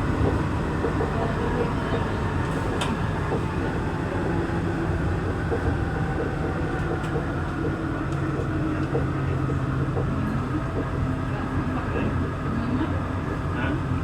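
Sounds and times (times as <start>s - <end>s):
train ride rumble: 0.0s - 14.0s.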